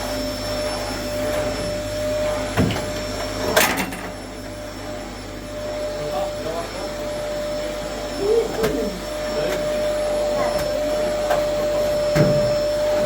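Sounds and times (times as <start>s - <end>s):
electric motor whining: 4.8s - 13.0s.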